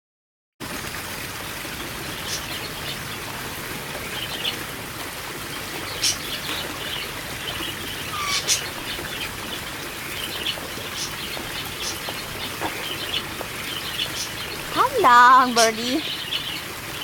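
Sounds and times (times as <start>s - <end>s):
small birds chirping: 5.9s - 16.6s.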